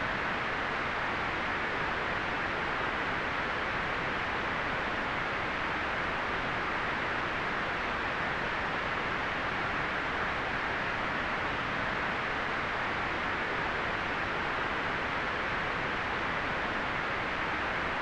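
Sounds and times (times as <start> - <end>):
white noise hiss: 0.0 - 18.0.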